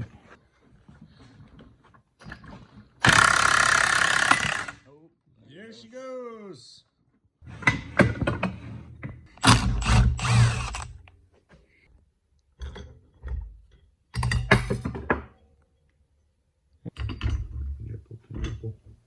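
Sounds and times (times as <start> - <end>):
tools ratcheting: 3.0 - 4.8, 9.3 - 11.0.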